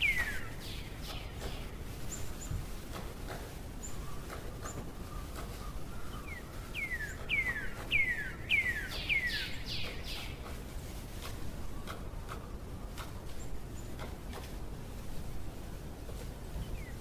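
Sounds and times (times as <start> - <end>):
bird singing clear sliding notes: 0.0 - 2.6, 5.6 - 10.4
low outdoor background hiss: 0.0 - 17.0.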